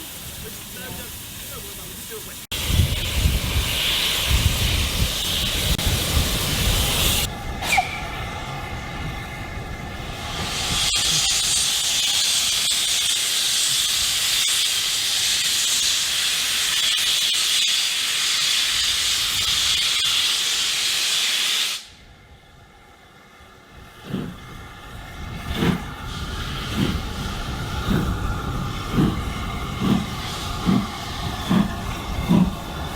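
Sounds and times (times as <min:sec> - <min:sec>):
steam locomotive hissing: 0:00.0 - 0:32.9.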